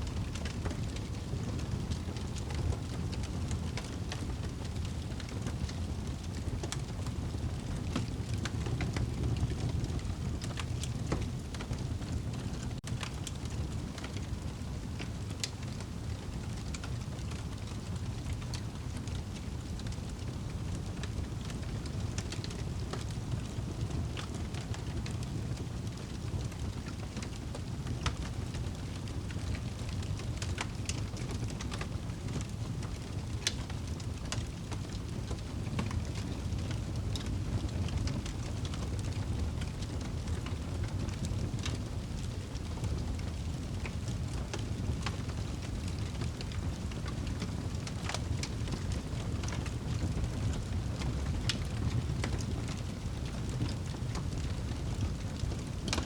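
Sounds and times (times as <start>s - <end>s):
fire crackles and pops: 0.0s - 56.0s
fire rumbling in fireplace: 0.0s - 56.0s.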